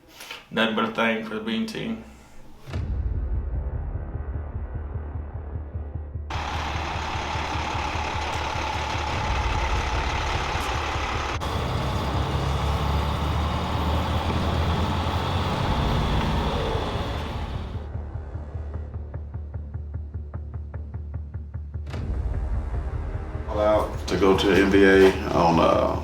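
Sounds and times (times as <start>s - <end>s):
heavy truck engine rumbling: 6.3s - 17.9s, 23.5s - 26.0s.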